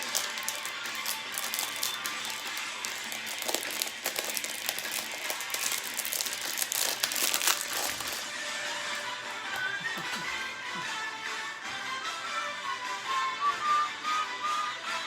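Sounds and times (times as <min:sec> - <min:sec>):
plastic wrapping crinkling: 0:00.0 - 0:10.5.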